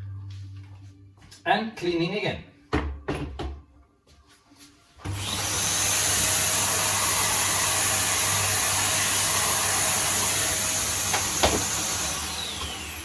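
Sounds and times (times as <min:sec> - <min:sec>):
vacuum cleaner running: 0:05.0 - 0:13.0.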